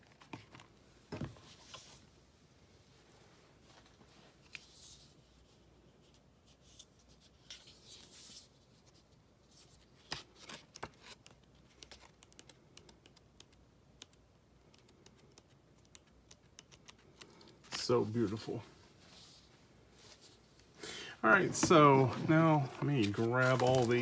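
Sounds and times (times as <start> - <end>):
packaging rustling: 21.5 - 24.0.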